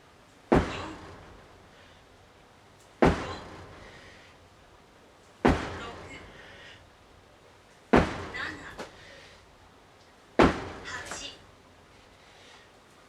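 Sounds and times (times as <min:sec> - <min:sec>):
sledgehammer heavy thuds: 0:00.5 - 0:01.6, 0:03.0 - 0:04.2, 0:05.4 - 0:06.6, 0:07.9 - 0:09.0, 0:10.4 - 0:11.2.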